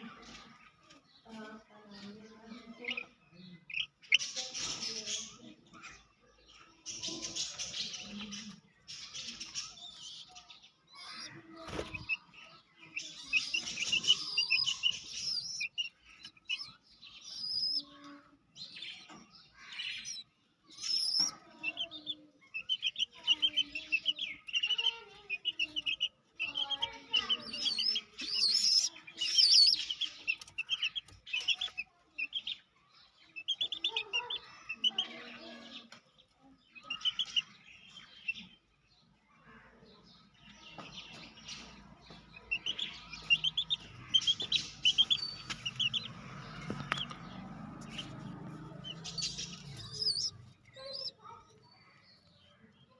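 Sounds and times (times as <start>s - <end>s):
chick peeping: 0.0s - 39.2s, 40.2s - 52.9s
wings flapping and scuffling: 11.0s - 17.9s, 19.6s - 32.6s, 40.7s - 51.6s.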